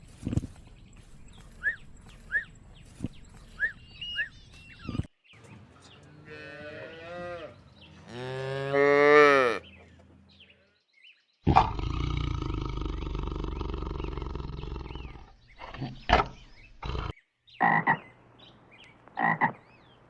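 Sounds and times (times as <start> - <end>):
cow mooing: 6.2 - 9.7.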